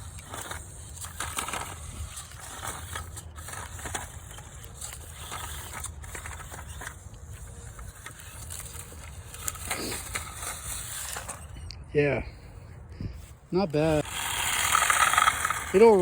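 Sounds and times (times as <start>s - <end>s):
toy truck tyres crunching ground: 0.0s - 11.7s, 13.2s - 16.0s.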